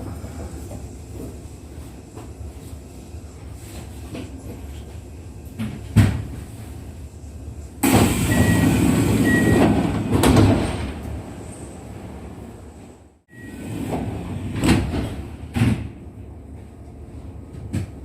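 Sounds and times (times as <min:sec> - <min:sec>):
air hiss of train doors: 0:07.8 - 0:12.0.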